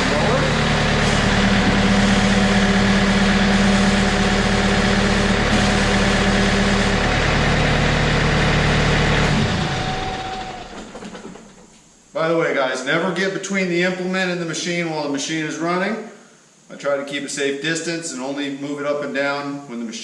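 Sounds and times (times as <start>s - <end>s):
diesel engine running: 0.0s - 11.7s
hydraulics raising mower: 0.0s - 11.9s.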